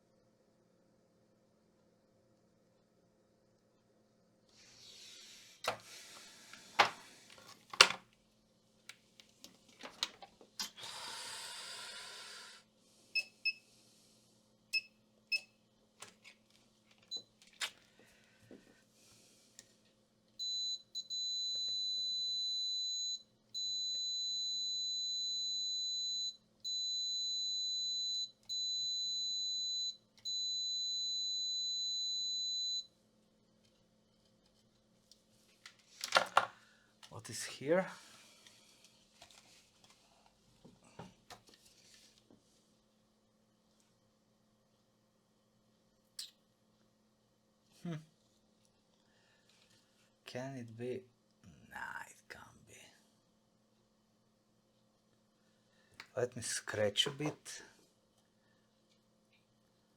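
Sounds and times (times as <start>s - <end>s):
faint electrical hum: 0.0s - 59.9s
multimeter continuity beeps: 20.4s - 32.9s.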